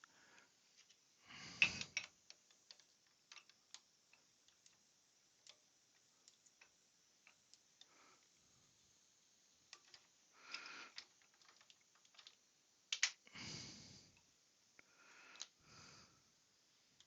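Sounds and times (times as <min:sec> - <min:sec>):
small parts clicking on bench: 0:00.0 - 0:08.4, 0:09.6 - 0:13.3, 0:14.1 - 0:15.6.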